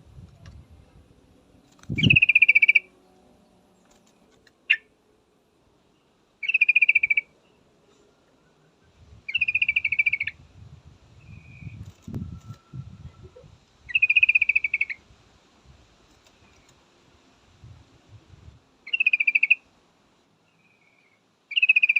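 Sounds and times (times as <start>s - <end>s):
bulbul chattering calls: 1.9s - 3.0s, 6.4s - 7.4s, 9.3s - 10.4s, 13.9s - 15.0s, 18.8s - 19.6s, 20.5s - 21.9s.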